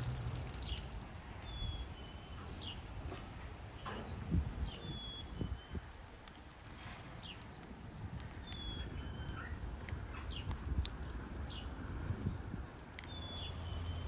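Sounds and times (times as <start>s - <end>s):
low steady rumble: 0.0s - 1.1s
small birds chirping: 0.0s - 2.9s, 3.7s - 6.5s, 7.1s - 14.0s.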